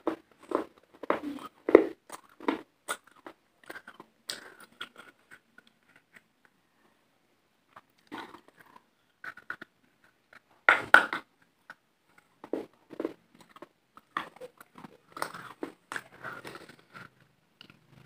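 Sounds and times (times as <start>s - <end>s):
lip smacks and mouth clicks: 0.1s - 6.3s
wet chewing: 11.6s - 18.0s.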